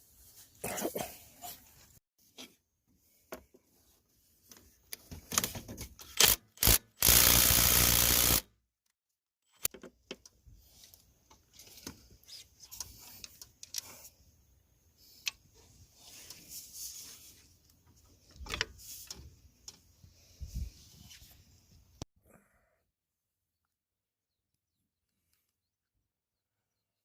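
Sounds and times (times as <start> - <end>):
small mechanical clicks and rattles: 5.3 - 8.4
sharp clicks: 6.2 - 8.4.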